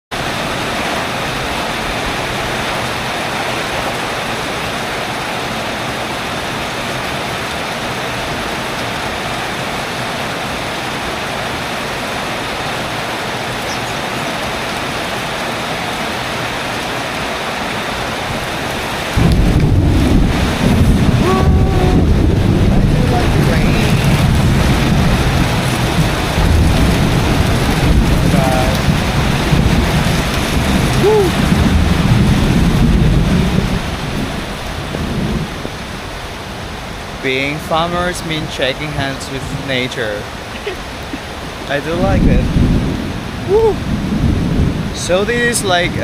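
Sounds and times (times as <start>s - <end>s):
heavy rain pouring: 0.1s - 46.0s
deep rushing sound: 19.2s - 35.4s.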